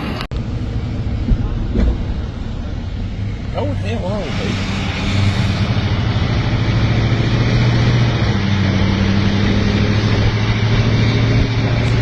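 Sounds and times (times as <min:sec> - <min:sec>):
vehicle engine humming: 0:00.0 - 0:12.0
loud rushing noise: 0:03.0 - 0:12.0.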